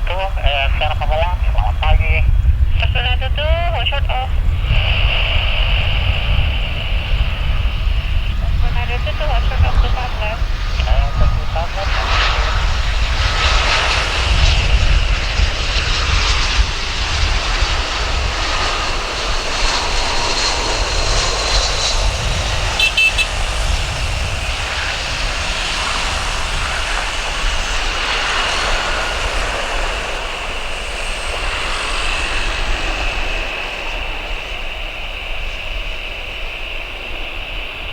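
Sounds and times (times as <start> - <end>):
jet engine rumble and whine: 0.0 - 37.9.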